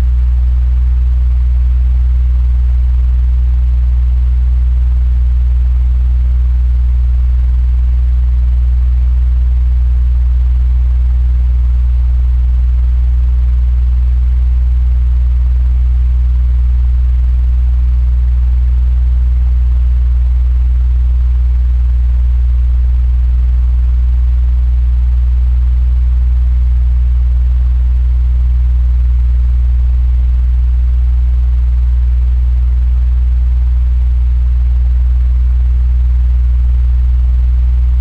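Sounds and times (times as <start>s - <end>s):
electric fan motor hum: 37.5s - 38.0s.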